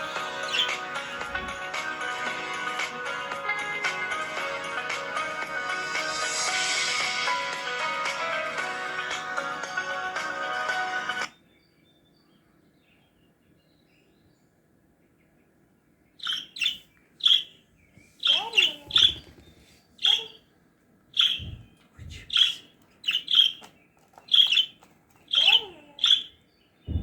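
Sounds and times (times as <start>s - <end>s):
parrot chirping: 0.0s - 1.5s, 16.2s - 17.6s, 18.2s - 19.4s, 20.0s - 20.5s, 21.1s - 27.0s
low thuds: 21.2s - 22.4s.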